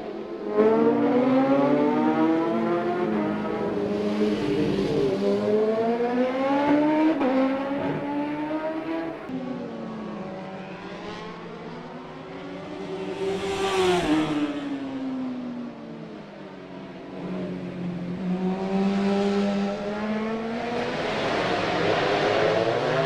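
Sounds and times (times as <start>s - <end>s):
racing motorcycle engines revving: 0.0s - 15.0s, 16.1s - 23.0s
motorcycle passing close: 0.4s - 9.3s, 12.4s - 15.0s.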